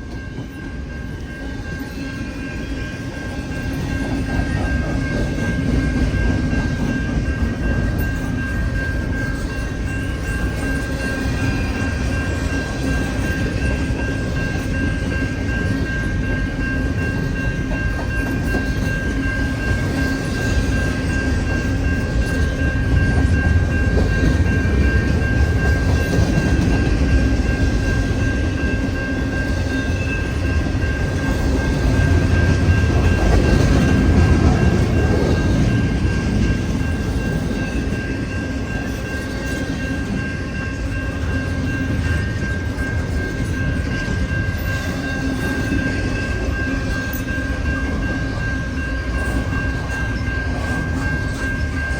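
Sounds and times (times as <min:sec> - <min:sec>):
train wheels rumbling: 0:00.0 - 0:51.9.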